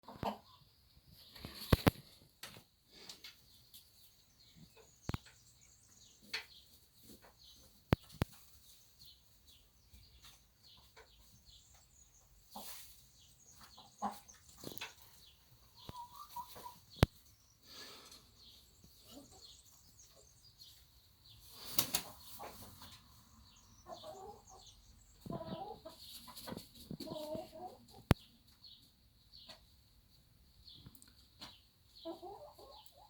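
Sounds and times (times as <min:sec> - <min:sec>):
hens clucking: 0:00.0 - 0:02.1, 0:04.4 - 0:17.4, 0:18.4 - 0:20.8, 0:21.4 - 0:28.6, 0:31.2 - 0:33.0.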